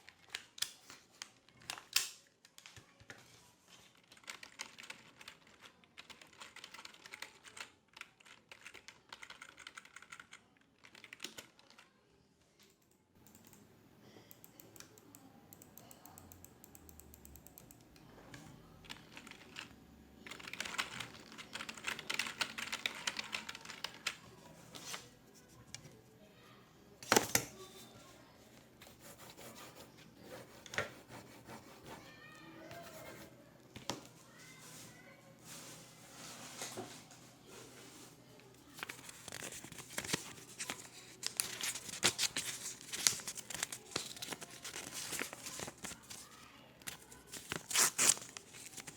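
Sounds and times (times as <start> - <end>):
typing on computer keyboard: 4.0 - 11.8, 14.3 - 17.8, 18.8 - 19.7, 20.3 - 24.2.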